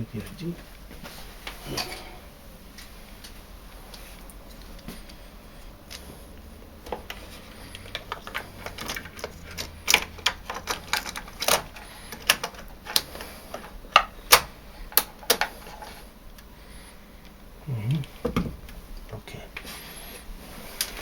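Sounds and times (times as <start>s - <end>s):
plastic parts clicking and knocking: 6.8s - 16.0s.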